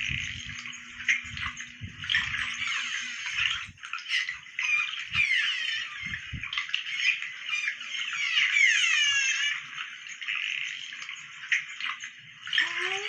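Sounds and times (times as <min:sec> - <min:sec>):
birds chirping and squawking: 0:00.0 - 0:13.0.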